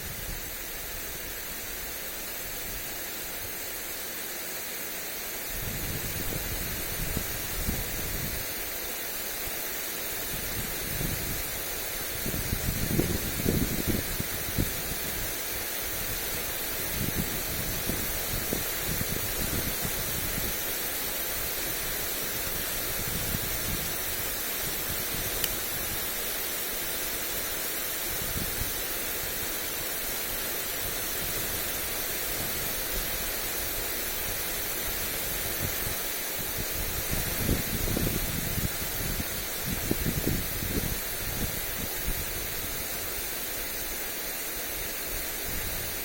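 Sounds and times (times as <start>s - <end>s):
lawn sprinkler spraying water: 0.0s - 46.0s
wind buffeting microphone: 12.1s - 15.3s, 16.8s - 20.6s, 21.8s - 24.0s, 35.0s - 42.8s.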